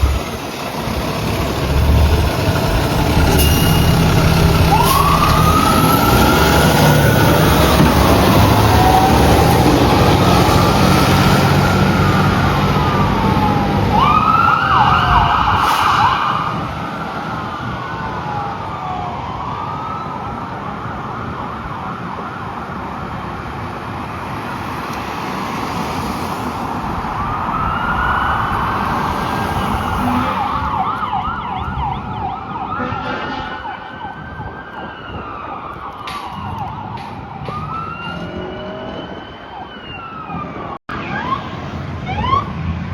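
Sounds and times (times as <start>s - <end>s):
heavy engine rumble: 0.0s - 14.2s, 26.3s - 34.5s
fire engine siren wailing: 0.0s - 23.5s, 25.0s - 42.9s.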